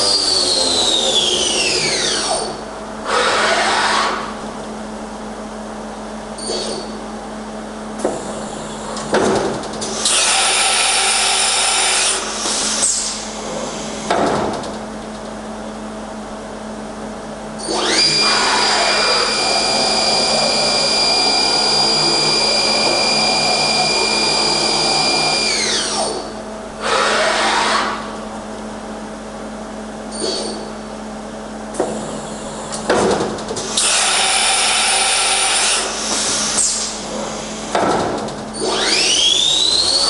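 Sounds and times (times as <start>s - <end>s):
machine hum: 0.0s - 40.0s
spindle high whine: 17.2s - 32.8s, 38.5s - 40.0s.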